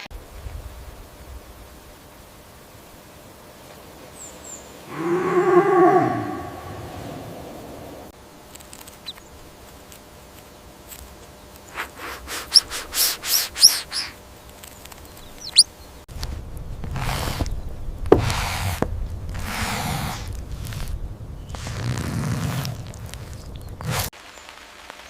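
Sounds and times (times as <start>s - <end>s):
bird chirping: 12.5s - 14.2s, 14.8s - 16.0s.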